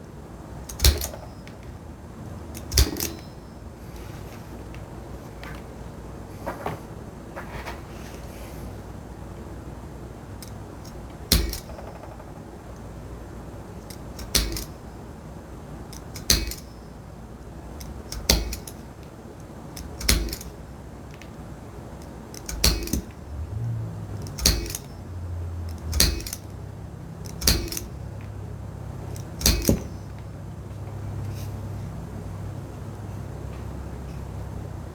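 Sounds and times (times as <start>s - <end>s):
punch striking leather: 25.9s - 26.4s, 27.4s - 27.9s, 29.4s - 30.0s.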